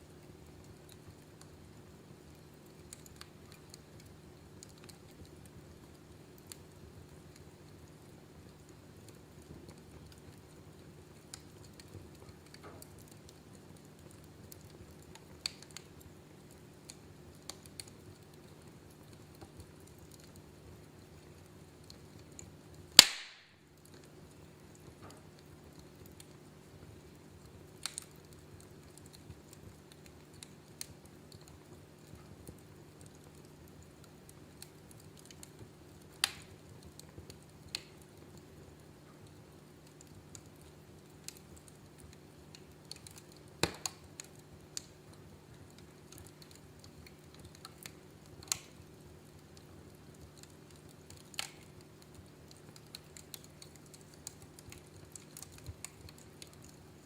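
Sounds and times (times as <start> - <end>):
wood fire crackling: 0.0 - 57.0
sharp pops of fire: 22.9 - 24.1, 36.1 - 36.6, 42.8 - 45.0, 46.2 - 48.8.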